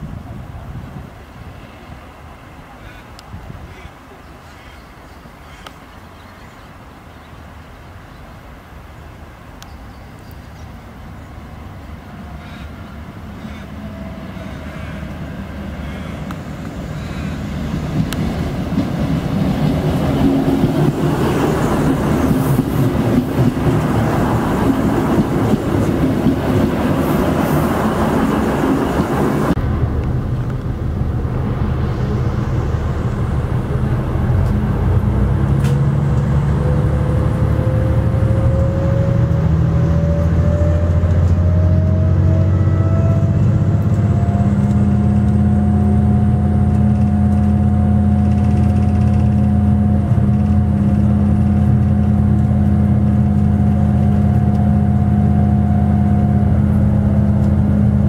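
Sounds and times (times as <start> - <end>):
train wheels rolling: 16.3 - 42.5, 43.1 - 58.0
diesel engine droning and whining: 23.6 - 58.0.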